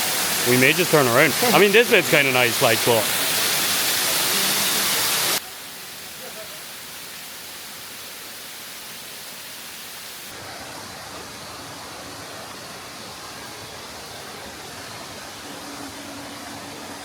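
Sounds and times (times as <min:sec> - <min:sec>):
waterfall rushing: 0:00.0 - 0:08.5.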